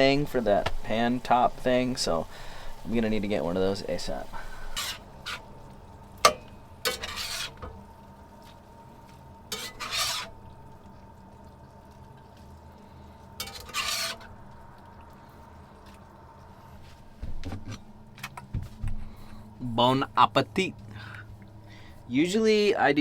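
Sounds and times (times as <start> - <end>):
metal utensil scraping a pan: 3.8 - 7.8, 9.5 - 10.5, 13.4 - 14.4.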